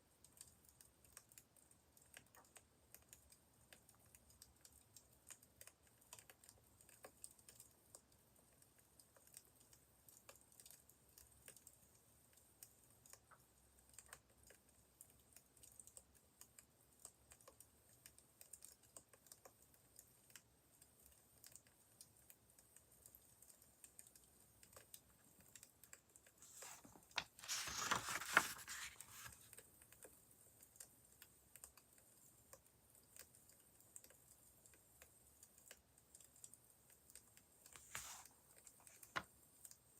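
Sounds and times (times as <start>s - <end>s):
brief rustle: 26.4s - 29.5s.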